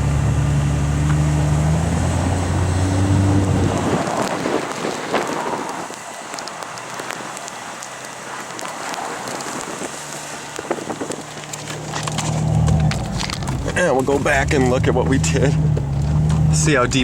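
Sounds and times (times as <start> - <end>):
faint engine running: 0.0 - 17.0
snow hissing against a vehicle: 3.8 - 11.5.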